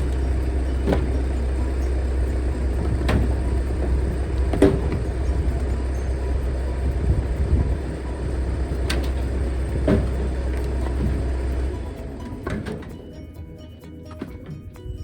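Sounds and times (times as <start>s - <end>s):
heavy engine running: 0.0s - 15.0s
sharp knocks: 2.8s - 5.8s.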